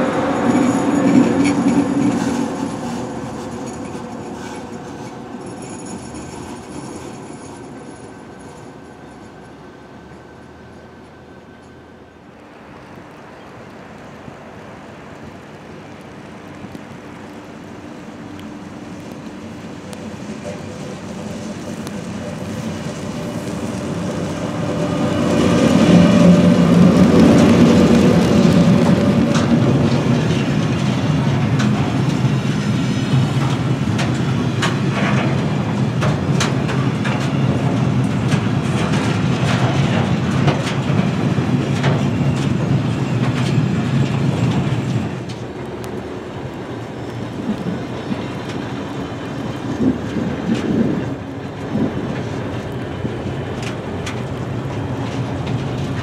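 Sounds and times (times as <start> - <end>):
train passing rumble: 0.0 - 56.0
wheels clicking over rail joints: 15.4 - 56.0.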